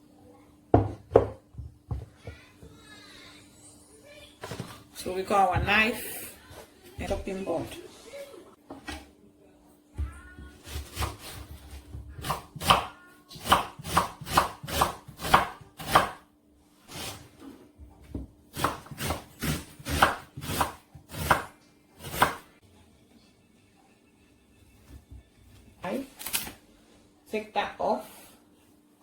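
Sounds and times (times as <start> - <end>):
knife chopping on board: 12.2 - 16.2, 18.6 - 22.4.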